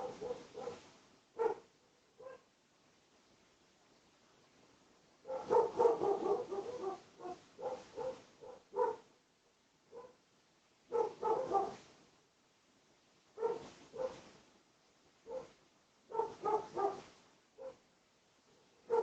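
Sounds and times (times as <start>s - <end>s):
dog barking: 0.0s - 0.8s, 1.4s - 2.5s, 5.2s - 9.1s, 9.9s - 10.2s, 10.9s - 11.8s, 13.4s - 14.2s, 15.2s - 17.8s, 18.5s - 19.0s.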